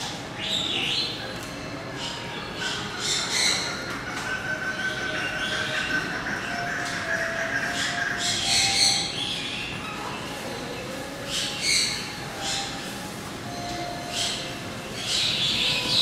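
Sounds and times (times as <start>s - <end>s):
birds squawking: 2.0s - 10.0s.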